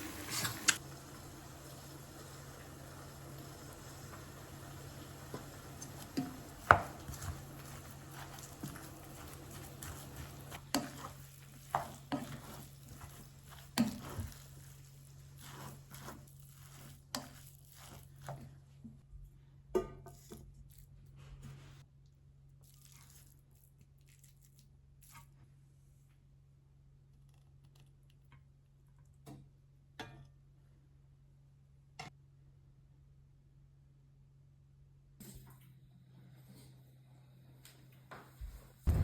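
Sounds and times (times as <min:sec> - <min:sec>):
spoon stirring food in a bowl: 0:05.2 - 0:18.6.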